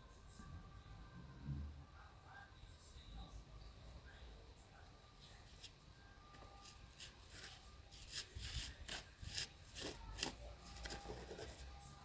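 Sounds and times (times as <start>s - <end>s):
hard plastic being scraped: 6.9s - 11.8s.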